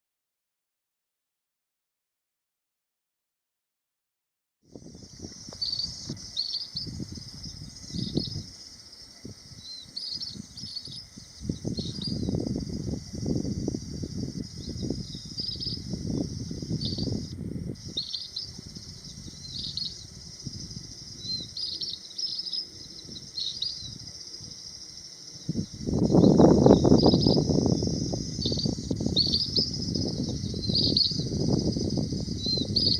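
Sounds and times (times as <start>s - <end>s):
high insect drone: 4.7s - 32.9s
minivets short high calls: 14.5s - 24.6s, 26.0s - 32.9s.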